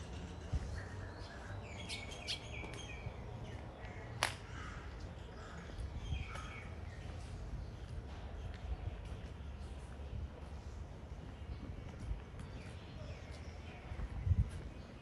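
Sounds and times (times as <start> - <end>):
birds calling: 0.0 - 7.9.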